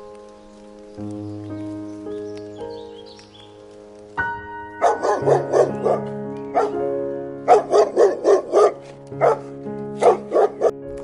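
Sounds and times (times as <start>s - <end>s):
background music: 0.0s - 11.0s
dog barking: 4.8s - 6.8s, 7.5s - 10.8s.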